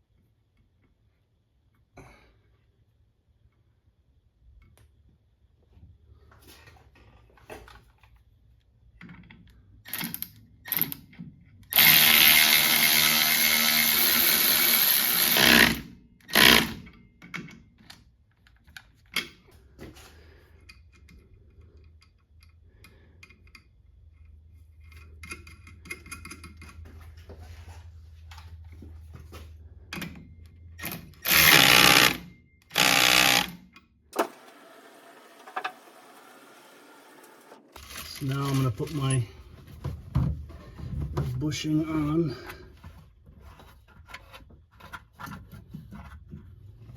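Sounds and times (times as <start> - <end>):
handheld power tool running: 11.7 - 16.8, 30.8 - 33.6.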